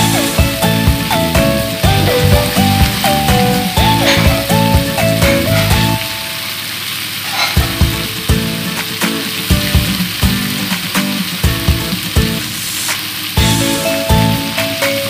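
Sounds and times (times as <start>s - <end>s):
background music: 0.0s - 6.6s, 13.4s - 15.0s
chicken sizzling in hot oil: 0.0s - 15.0s.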